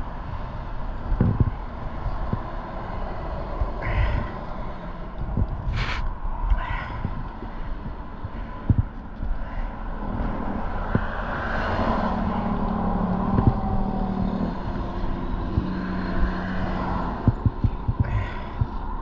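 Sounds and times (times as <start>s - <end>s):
vehicle passing: 0.0s - 19.0s
thumps: 13.3s - 14.6s.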